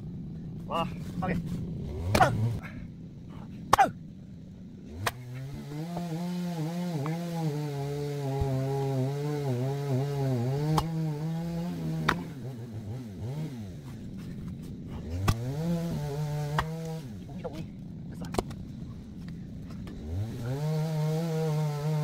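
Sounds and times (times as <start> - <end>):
small engine running: 0.0 - 22.0
sharp wooden knocks: 16.3 - 17.0.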